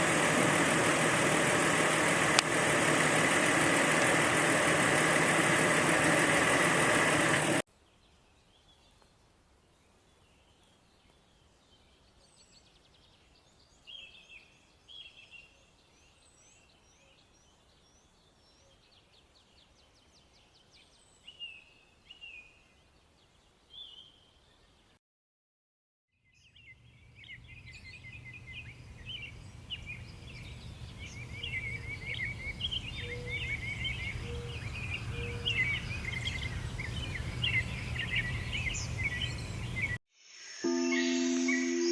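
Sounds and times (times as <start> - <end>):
loud steady noise: 0.0 - 7.6
small bird chirping: 26.4 - 41.9.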